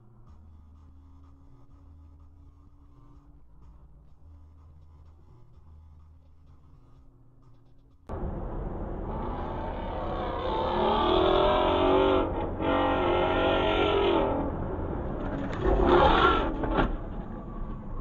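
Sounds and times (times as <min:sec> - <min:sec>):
car engine running hard: 0:08.1 - 0:18.0
rush of noise: 0:08.1 - 0:18.0.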